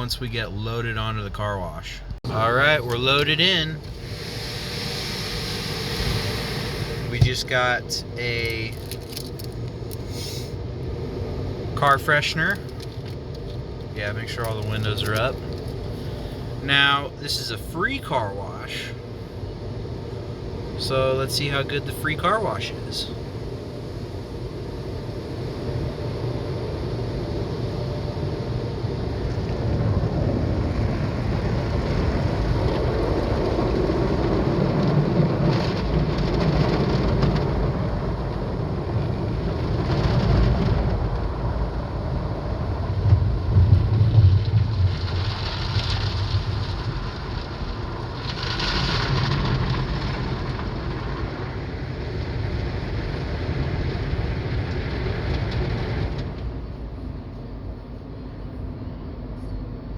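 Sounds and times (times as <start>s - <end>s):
low rumble of machinery: 0.0s - 59.9s
water spraying on car body: 2.7s - 17.1s, 28.8s - 55.9s.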